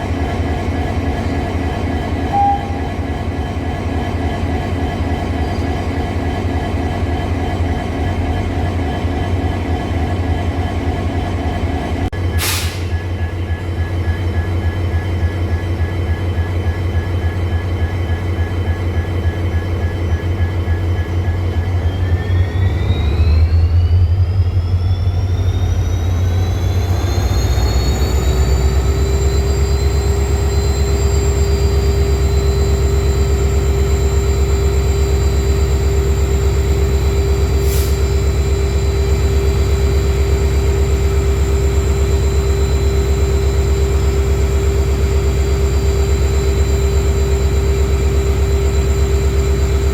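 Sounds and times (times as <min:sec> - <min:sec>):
diesel locomotive engine idling: 0:00.0 - 0:49.9
engine whine rising in pitch: 0:17.0 - 0:49.9.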